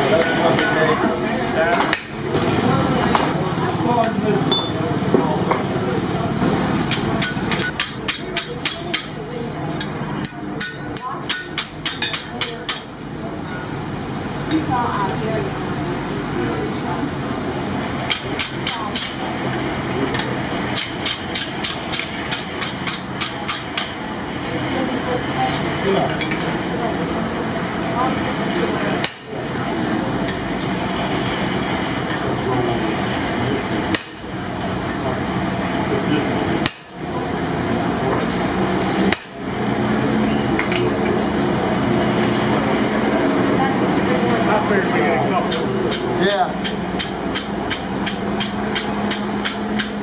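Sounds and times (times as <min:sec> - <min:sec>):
low engine drone: 0:12.6 - 0:50.0.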